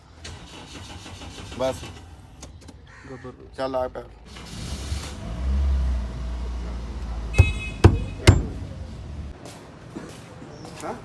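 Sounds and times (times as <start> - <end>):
car engine running roughly: 6.3 - 9.3
sharp bangs: 7.3 - 9.3.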